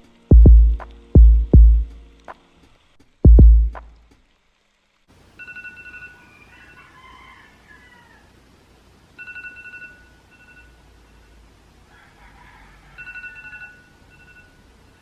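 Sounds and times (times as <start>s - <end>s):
telephone ringing: 5.4s - 6.3s, 9.2s - 10.8s, 13.0s - 14.6s.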